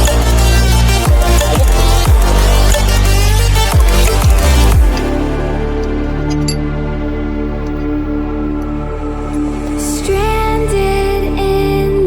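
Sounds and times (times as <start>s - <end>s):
electronic dance music: 0.0s - 5.8s.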